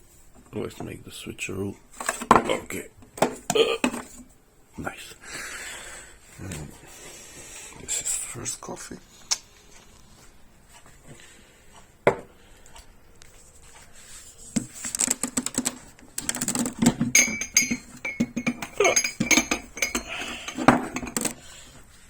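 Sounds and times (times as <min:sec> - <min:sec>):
china clattering and clinking: 0:15.0 - 0:21.4.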